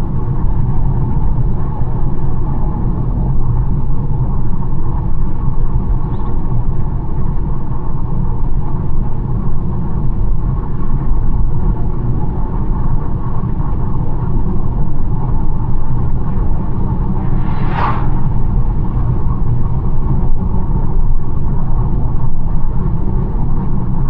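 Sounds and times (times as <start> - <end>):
car engine rumble: 14.4 - 21.5.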